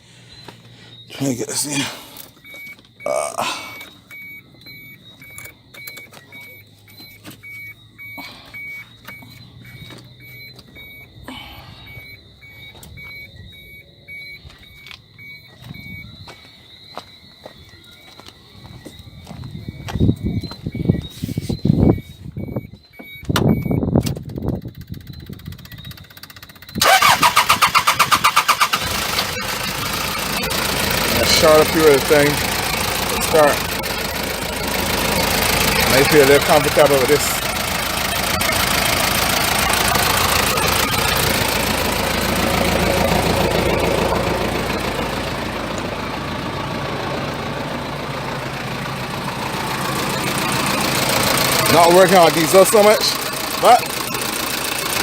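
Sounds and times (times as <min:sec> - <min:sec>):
diesel engine starter cranking: 0:23.4 - 0:55.0.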